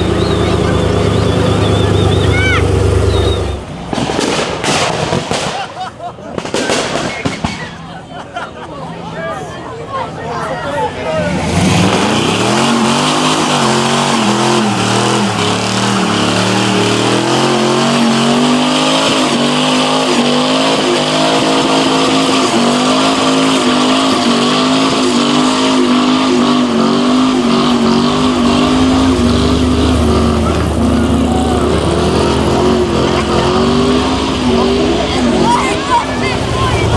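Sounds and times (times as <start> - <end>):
deep engine rumble: 0.0 - 4.8, 10.9 - 19.7, 25.8 - 36.9
car engines revving: 0.0 - 6.8, 9.5 - 36.9.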